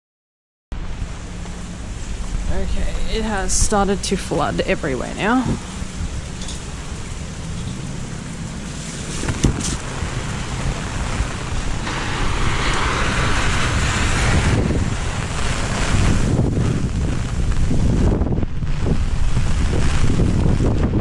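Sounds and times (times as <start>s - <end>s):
heavy rain rushing: 0.8s - 21.0s
wind buffeting microphone: 0.8s - 21.0s.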